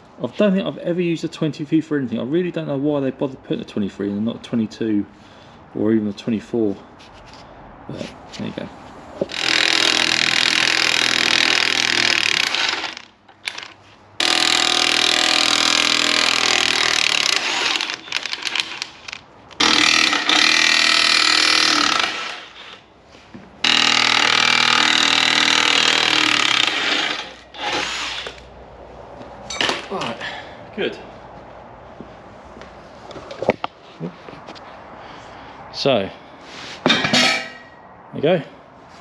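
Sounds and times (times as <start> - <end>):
impact wrench hammering: 9.2 - 13.6, 14.2 - 18.7, 19.6 - 22.6, 23.6 - 27.9.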